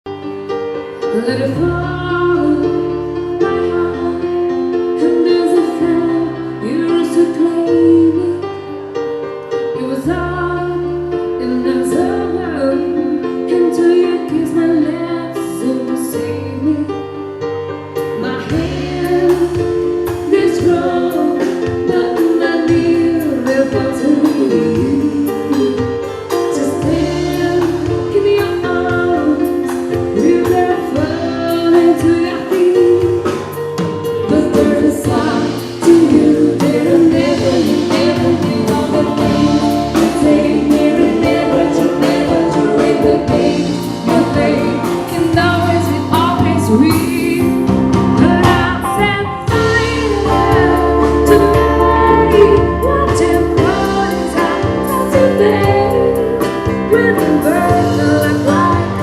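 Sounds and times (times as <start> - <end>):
percussion: 17.2 - 59.0
brass band playing: 33.2 - 59.0
person singing: 34.3 - 59.0.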